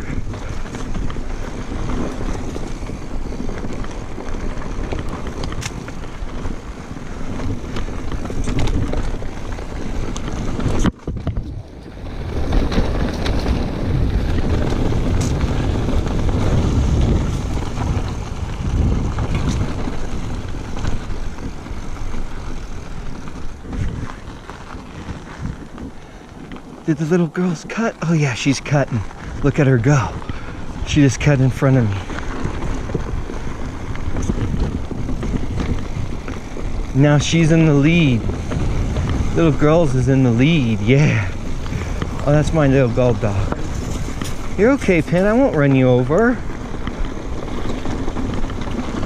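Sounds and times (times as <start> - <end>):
bike tyre noise and rattle: 0.0 - 49.0
wind on microphone: 0.0 - 49.0.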